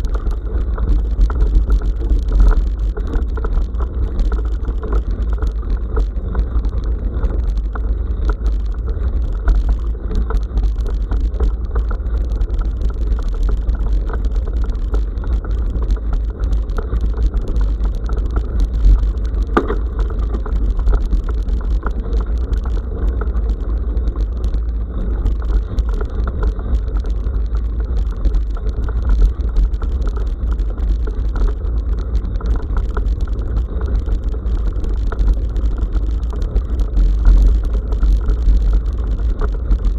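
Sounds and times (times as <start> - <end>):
wind and vibration rumble: 0.0 - 39.9.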